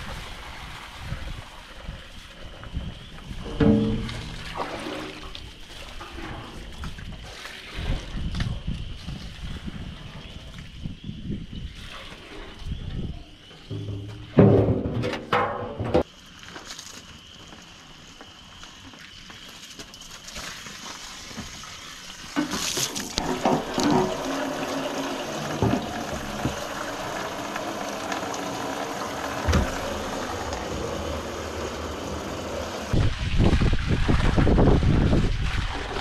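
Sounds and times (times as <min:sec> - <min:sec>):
water running and splashing: 0:03.2 - 0:10.6, 0:18.9 - 0:36.0
knocks on metal tank: 0:03.5 - 0:04.3.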